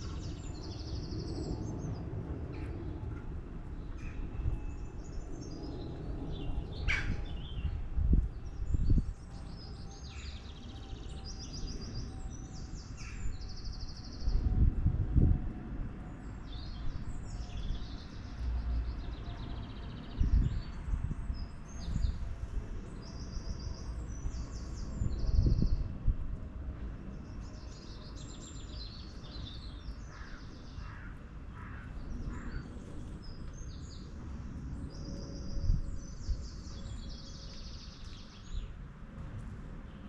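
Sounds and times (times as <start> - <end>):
garden birds chirping: 0.0 - 3.0, 27.1 - 38.8.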